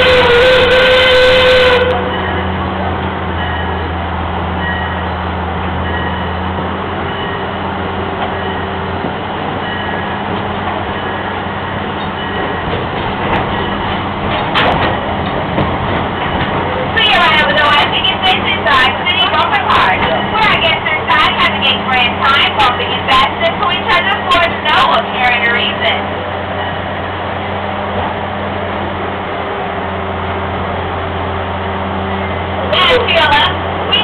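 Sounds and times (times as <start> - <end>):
train whistle: 0.0 - 2.2
train rumbling and clattering on track: 0.0 - 34.0.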